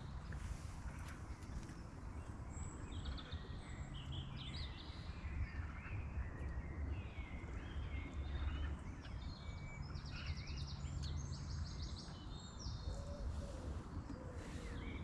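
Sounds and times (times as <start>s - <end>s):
birds chirping: 7.1s - 15.0s.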